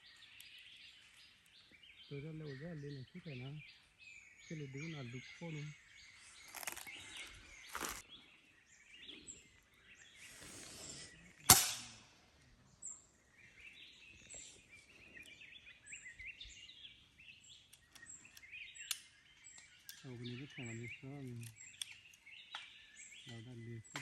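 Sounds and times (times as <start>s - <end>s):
birds chirping and warbling: 0.0s - 24.0s
rustling: 6.3s - 8.0s
sharp crack: 6.5s - 7.0s, 11.4s - 12.2s.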